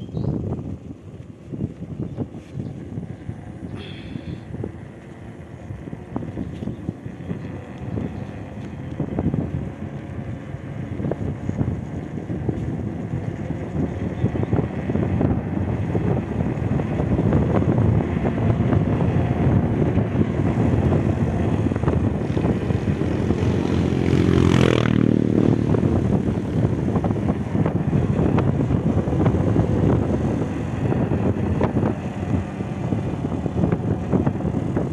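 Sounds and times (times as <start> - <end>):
road and wind noise: 0.0 - 34.9
engine passing close by: 7.0 - 34.9.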